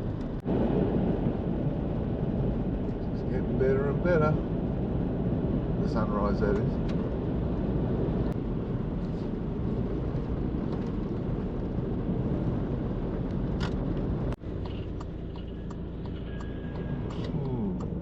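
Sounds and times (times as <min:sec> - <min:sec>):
vehicle engine and tyre noise: 0:00.0 - 0:18.0.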